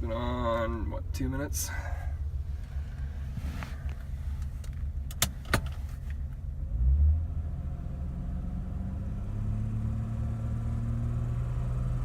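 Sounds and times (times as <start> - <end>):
car engine idling: 0.0 - 6.7.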